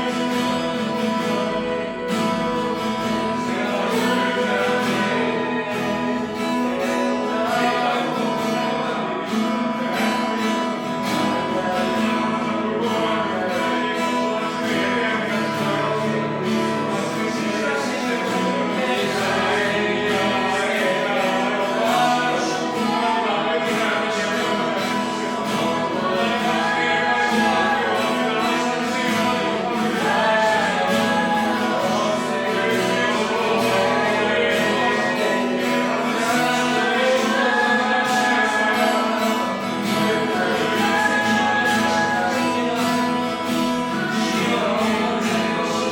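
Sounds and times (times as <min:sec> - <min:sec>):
strummed acoustic guitar: 0:00.0 - 0:45.9
voices singing: 0:00.0 - 0:45.9.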